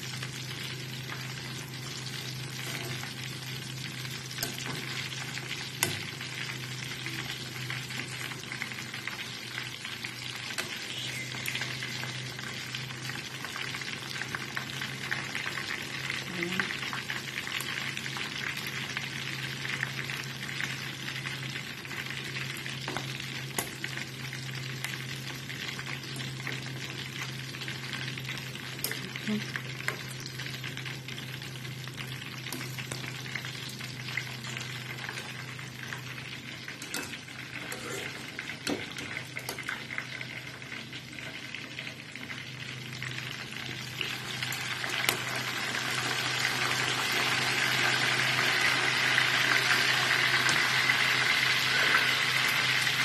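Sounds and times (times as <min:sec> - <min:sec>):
chicken deep-frying in hot oil: 0:00.0 - 0:53.0.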